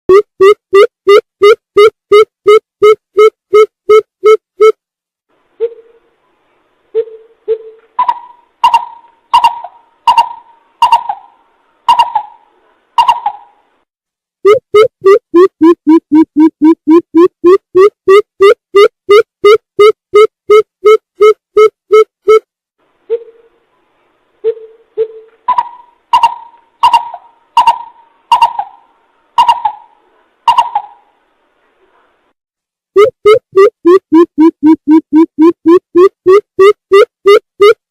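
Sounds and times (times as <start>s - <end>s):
bird hooting calls: 8.0s - 13.6s, 24.5s - 31.1s.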